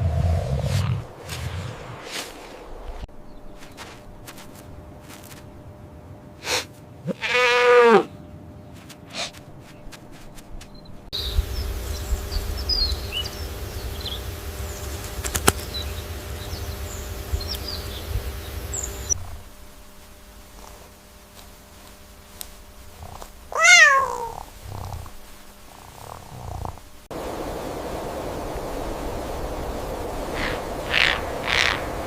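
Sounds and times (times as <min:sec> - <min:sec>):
steady low rumble: 0:00.0 - 0:07.0, 0:09.4 - 0:23.6
farm animal bleating: 0:07.0 - 0:08.2, 0:23.0 - 0:24.8.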